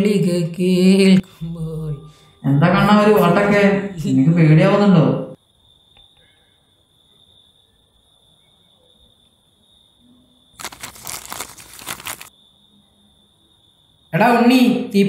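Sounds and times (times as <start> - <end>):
crickets trilling: 0.0 - 15.0
rough rustling: 10.6 - 12.3.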